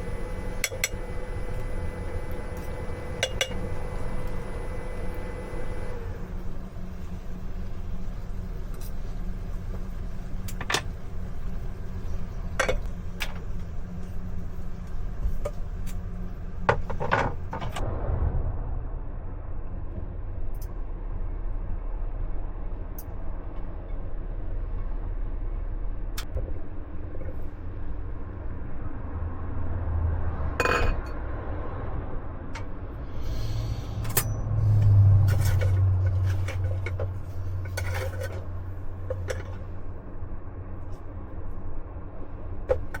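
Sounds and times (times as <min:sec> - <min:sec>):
steady low hum: 0:00.0 - 0:43.0
dishes and utensils clinking: 0:30.6 - 0:31.2.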